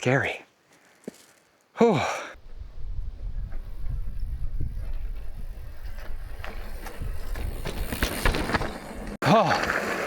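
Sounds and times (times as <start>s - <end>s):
bike rattles and clicks: 3.5s - 9.2s
bike rolling over rock rumble: 4.4s - 10.0s.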